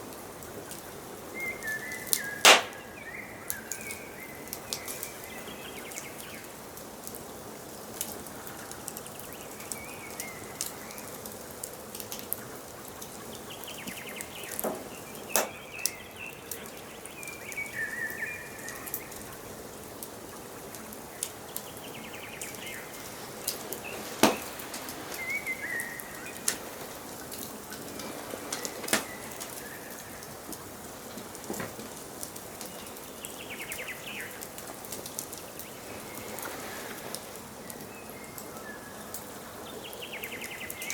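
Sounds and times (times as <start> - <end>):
steady hiss: 0.0 - 40.9
wood fire crackling and popping: 1.9 - 7.2, 8.0 - 38.0
birds chirping and trilling: 20.2 - 30.5.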